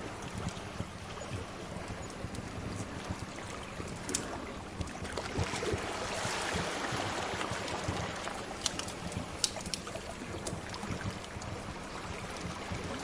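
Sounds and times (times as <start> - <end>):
sea waves washing in: 0.0 - 13.0
wood fire crackling: 8.6 - 9.9.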